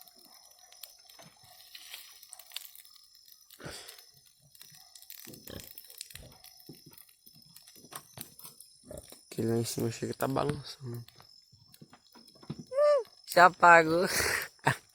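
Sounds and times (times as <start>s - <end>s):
loud fire cracks: 0.0s - 11.8s
bonfire crackling and popping: 0.0s - 14.9s.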